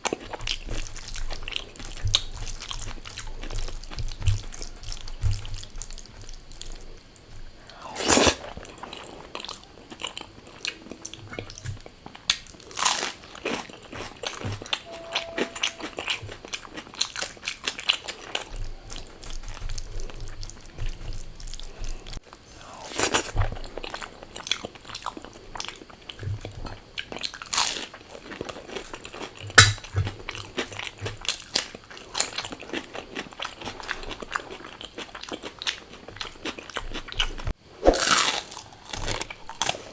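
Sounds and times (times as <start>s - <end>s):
crunching bites of fried food: 11.7s - 14.7s, 26.9s - 39.9s.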